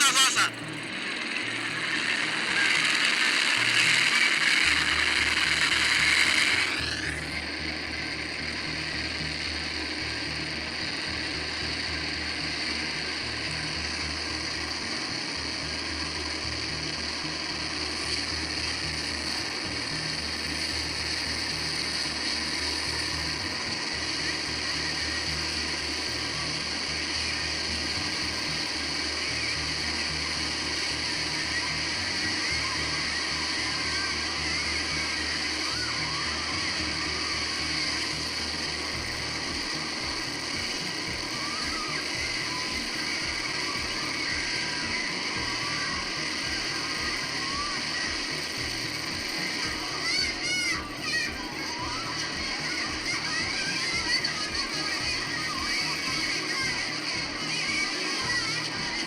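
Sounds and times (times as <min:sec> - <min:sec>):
helicopter rotor chop: 0:00.0 - 0:59.0.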